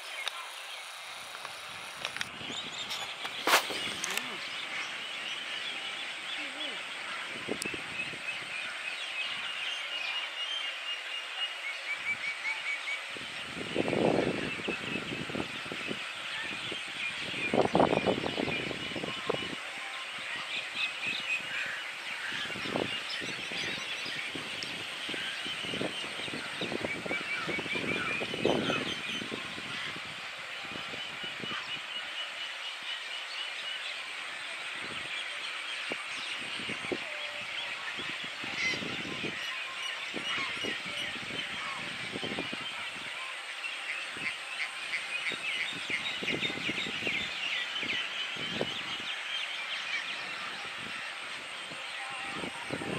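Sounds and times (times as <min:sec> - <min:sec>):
louder low bird calls: 0:00.0 - 0:10.0
water birds chattering: 0:00.0 - 0:52.9.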